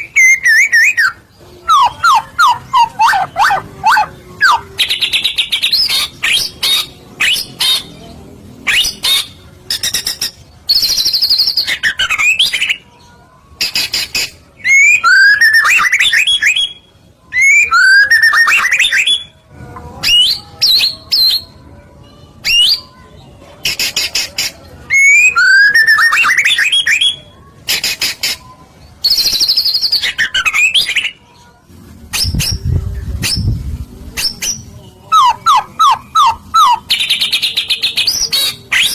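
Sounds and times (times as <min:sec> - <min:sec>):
bird singing trills and whistles: 0:00.0 - 0:08.0, 0:08.6 - 0:12.8, 0:13.6 - 0:19.4, 0:23.7 - 0:31.2, 0:34.2 - 0:38.9.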